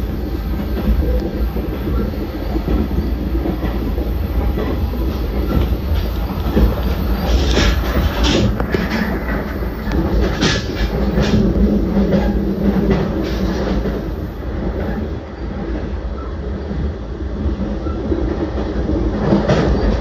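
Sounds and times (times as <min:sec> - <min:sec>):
train wheels rumbling on rail: 0:00.0 - 0:20.0
clicks over rail joints: 0:05.4 - 0:14.0.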